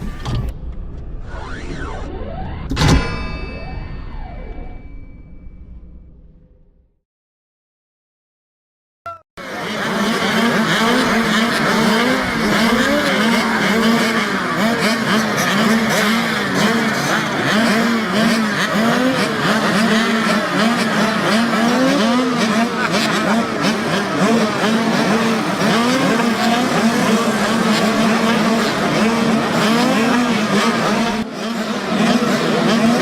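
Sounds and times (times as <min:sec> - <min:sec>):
mini-motorcycle engines revving: 0:09.4 - 0:33.0.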